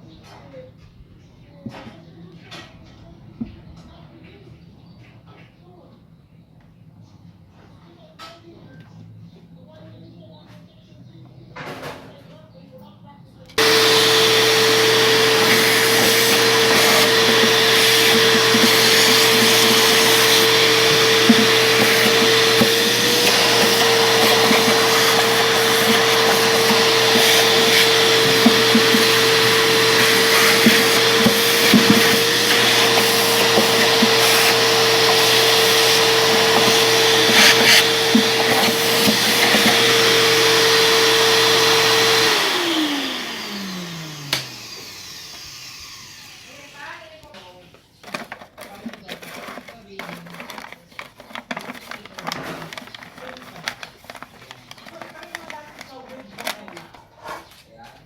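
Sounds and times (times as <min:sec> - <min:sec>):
vacuum cleaner whining: 0:13.6 - 0:47.5, 0:48.1 - 0:57.0.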